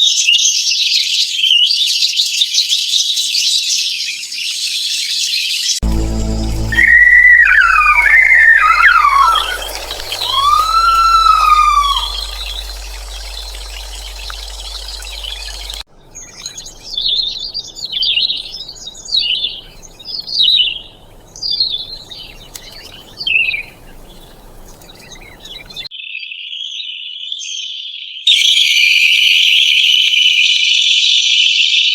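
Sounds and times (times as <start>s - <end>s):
steady high tone: 5.8s - 15.8s
sliding whistled bird calls: 5.9s - 25.9s
songbird singing warbled phrases: 6.1s - 25.9s.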